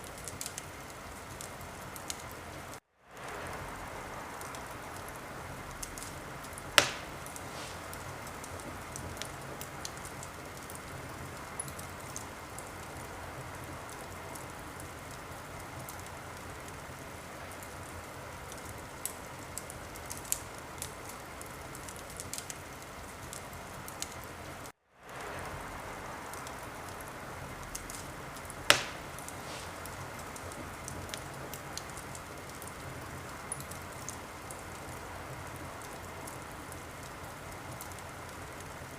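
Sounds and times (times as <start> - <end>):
wood fire hissing and crackling: 0.0 - 38.9
sharp loud pops of fire: 5.8 - 10.7, 27.7 - 32.1.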